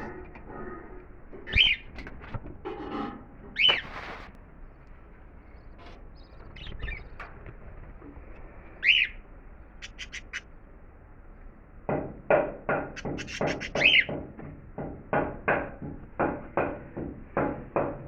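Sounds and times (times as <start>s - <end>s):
bird calling: 0.0s - 2.1s, 3.5s - 4.3s, 5.4s - 7.3s, 8.8s - 10.5s, 12.9s - 14.2s
high bird chips: 3.6s - 4.3s, 9.8s - 10.5s.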